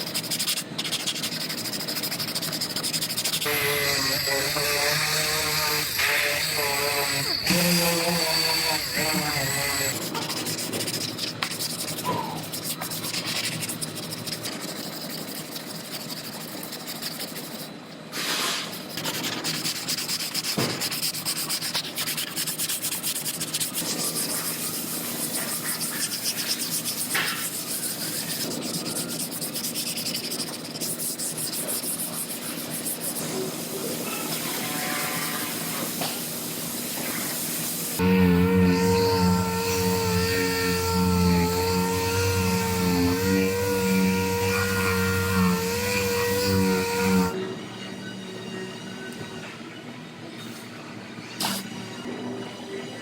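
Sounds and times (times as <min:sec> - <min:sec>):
sanding rubbing noise: 0:00.0 - 0:47.4.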